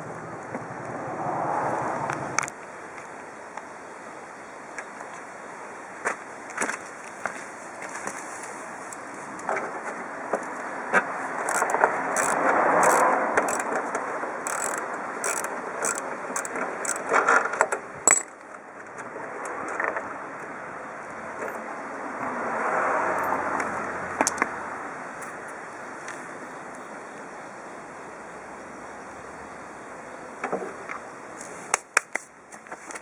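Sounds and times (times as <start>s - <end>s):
mechanical clicking and ratcheting: 11.4s - 13.8s, 14.4s - 17.1s, 18.1s - 18.3s.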